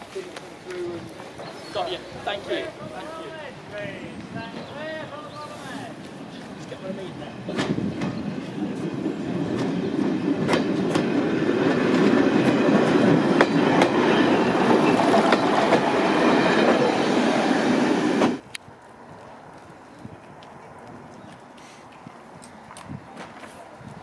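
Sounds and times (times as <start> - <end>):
train rumbling on track: 0.4 - 19.5.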